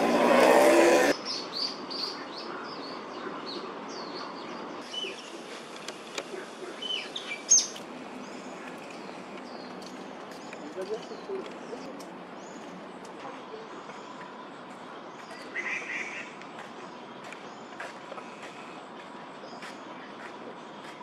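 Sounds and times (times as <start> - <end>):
loud vehicle engine: 0.0 - 1.2
small birds chirping: 1.1 - 21.0.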